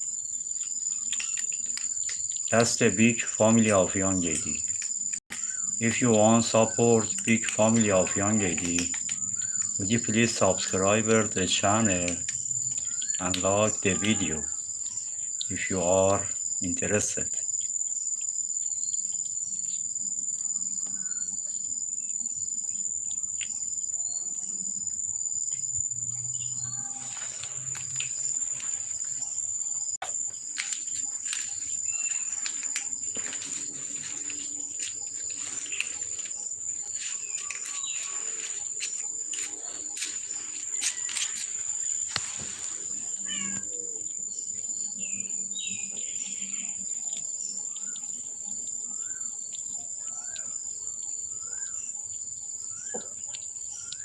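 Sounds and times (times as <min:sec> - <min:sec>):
insects trilling: 0:00.0 - 0:54.0
bird chirps: 0:05.3 - 0:12.1, 0:12.7 - 0:16.0, 0:20.9 - 0:22.2, 0:33.6 - 0:44.0, 0:48.8 - 0:54.0.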